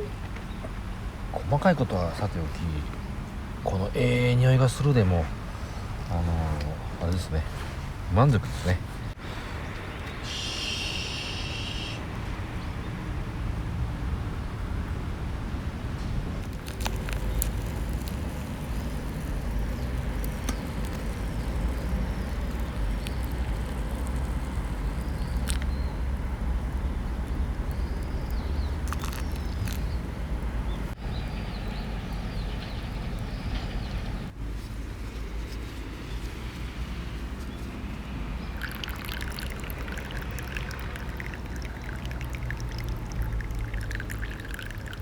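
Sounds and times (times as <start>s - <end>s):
wood fire crackling: 16.4s - 31.0s.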